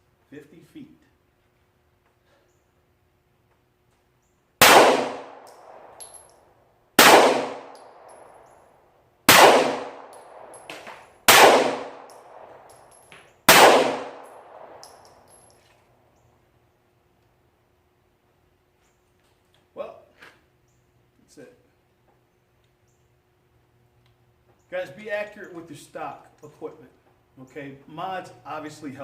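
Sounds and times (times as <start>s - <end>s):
pistol shots: 4.6s - 6.3s, 7.0s - 8.5s, 9.3s - 15.4s.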